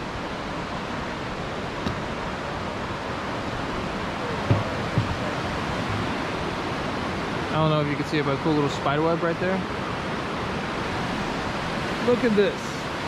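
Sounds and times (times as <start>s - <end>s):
flowing water rushing: 0.0s - 13.0s
soft low thumps: 4.4s - 5.3s.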